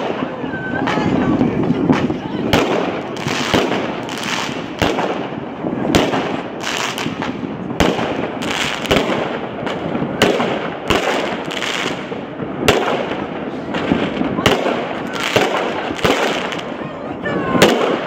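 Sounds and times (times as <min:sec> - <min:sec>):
continuous firework crackle: 0:00.0 - 0:18.0.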